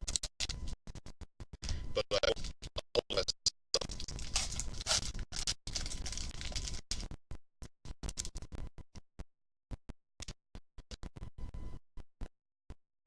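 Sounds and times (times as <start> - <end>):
glitching audio noise burst: 1.9 - 5.0.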